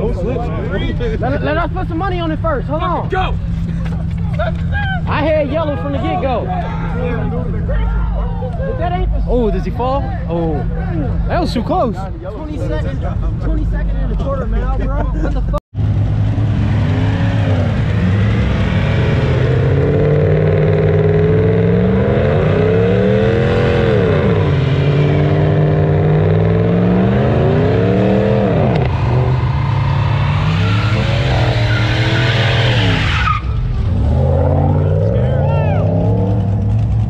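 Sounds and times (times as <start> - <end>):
engine revving hard: 15.8 - 37.0.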